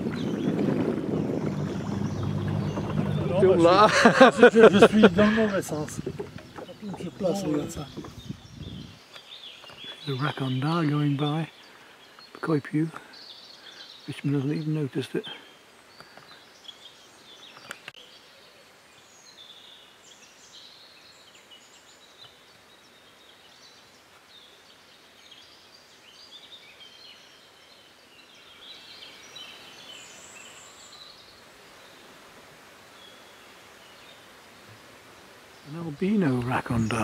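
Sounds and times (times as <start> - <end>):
birds singing and chirping: 0.0 - 32.0, 35.4 - 37.0
faint outdoor hush: 1.2 - 9.0.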